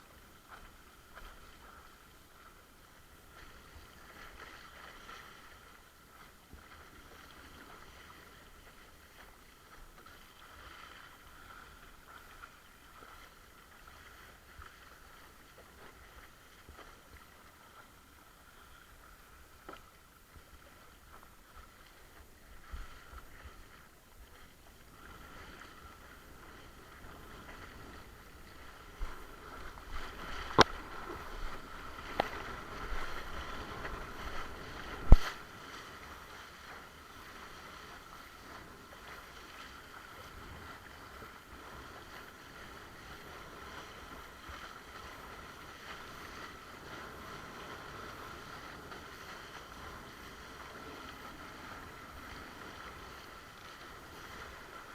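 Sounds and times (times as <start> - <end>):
wind noise: 25.2 - 35.5
water slapping against board: 30.0 - 35.5.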